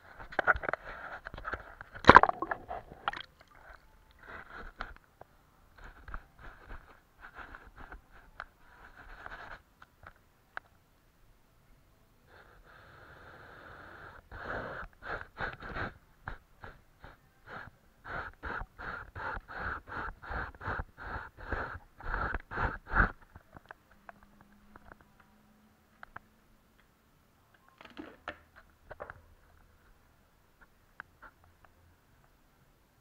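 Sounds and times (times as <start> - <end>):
paintbrush strokes on paper: 5.8 - 9.7.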